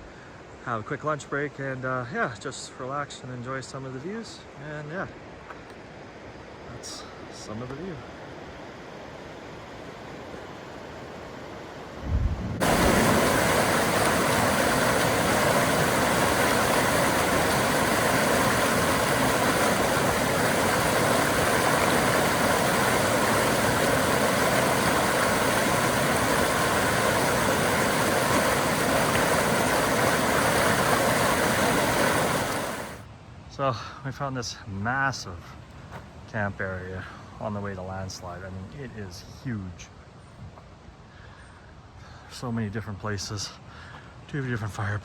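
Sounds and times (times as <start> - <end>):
rushing water roar: 4.4 - 33.1.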